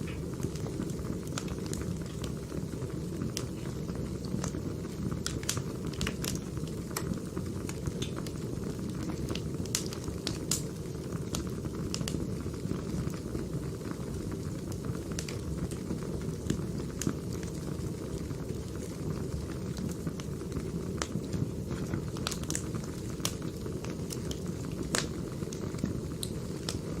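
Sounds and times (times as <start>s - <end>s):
fire rushing: 0.0s - 27.0s
logs crackling and popping: 0.0s - 27.0s.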